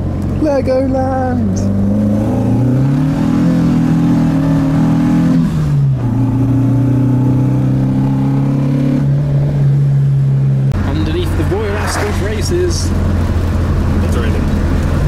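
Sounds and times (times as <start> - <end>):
car engine pulling from inside cabin: 10.8 - 15.0.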